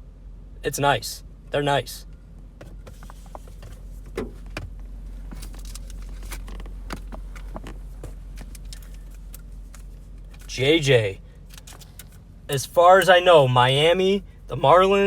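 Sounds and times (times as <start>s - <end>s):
steady low hum: 0.0s - 15.0s
cards and wrappers rustling: 5.2s - 10.5s.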